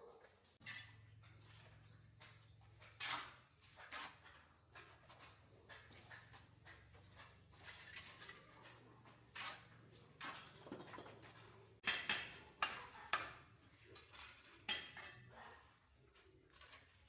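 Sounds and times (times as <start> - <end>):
pots and dishes clattering: 10.1 - 15.6.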